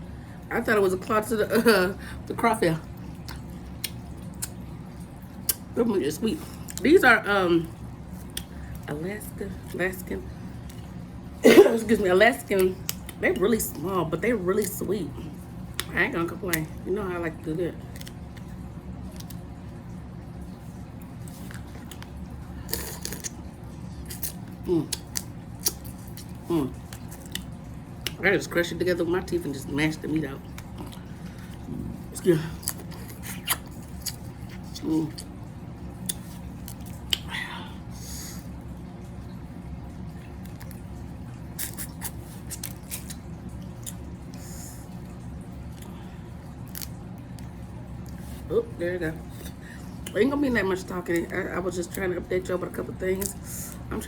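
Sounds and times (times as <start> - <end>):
wet squishes: 2.9 - 7.0, 7.6 - 28.5, 29.2 - 53.9
wet chewing and sucking: 3.2 - 4.6, 8.1 - 8.9, 20.6 - 28.2, 30.4 - 35.4, 36.0 - 38.5, 40.2 - 45.0.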